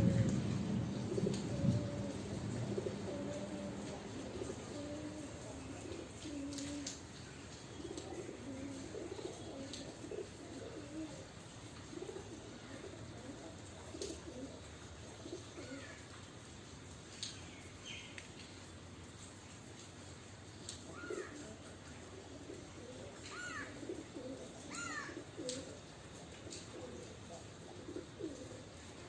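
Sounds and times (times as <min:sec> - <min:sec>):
pigeons cooing: 0:00.0 - 0:07.0, 0:07.6 - 0:16.1, 0:20.8 - 0:29.0.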